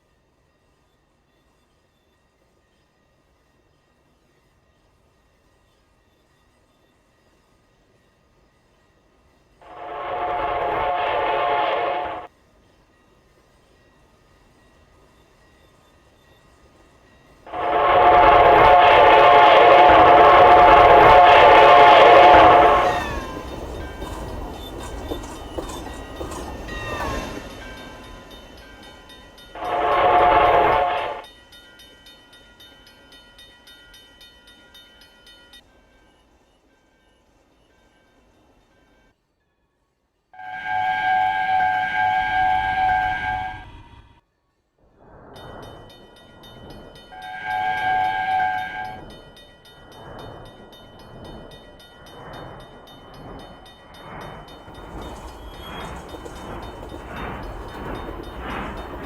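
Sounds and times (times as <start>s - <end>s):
train rumbling past: 0.0s - 33.2s, 40.4s - 44.2s, 44.8s - 59.0s
train horn blast: 9.6s - 12.3s, 17.5s - 23.3s, 29.6s - 31.3s, 40.4s - 44.0s, 47.2s - 49.1s
train wheels clicking: 13.1s - 35.6s, 45.3s - 59.0s.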